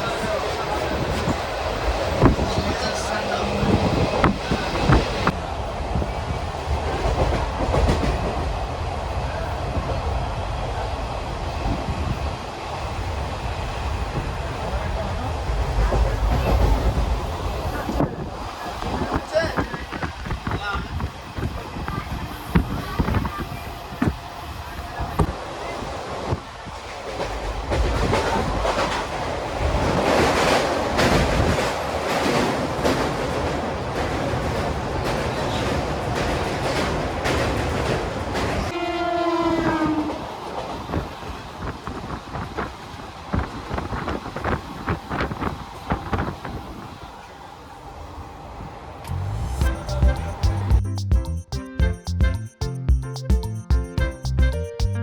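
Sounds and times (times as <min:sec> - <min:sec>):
train wheels rumbling on rails: 0:00.0 - 0:51.4
wheels clacking over rails: 0:26.8 - 0:38.8.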